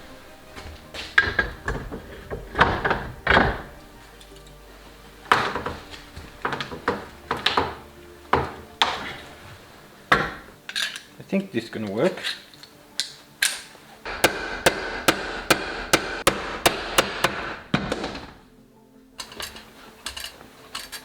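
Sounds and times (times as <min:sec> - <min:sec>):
background music: 0:00.0 - 0:21.0
sheet metal knocks and clanks: 0:01.0 - 0:03.8, 0:14.1 - 0:18.4.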